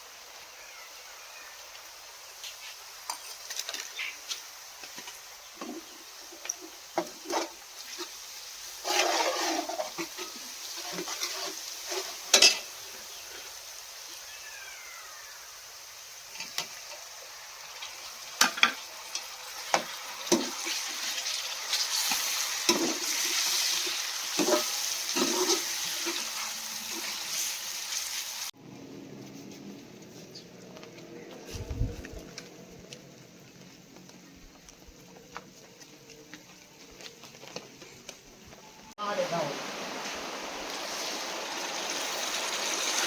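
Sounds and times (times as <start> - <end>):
food sizzling: 0.0 - 30.4, 38.2 - 43.0
metal spoon scraping a pot: 8.8 - 12.7.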